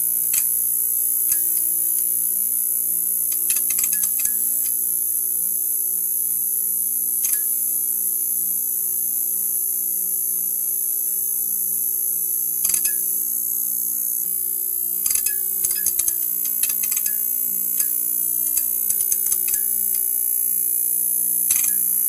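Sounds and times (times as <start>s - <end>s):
neon sign buzzing: 0.0s - 7.8s, 12.0s - 22.0s
short electrical clicks: 21.5s - 21.9s.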